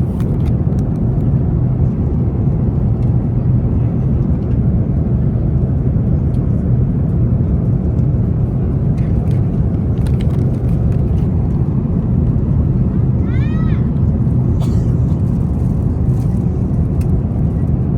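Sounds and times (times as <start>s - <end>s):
aircraft cabin engine rumble: 0.0s - 17.9s.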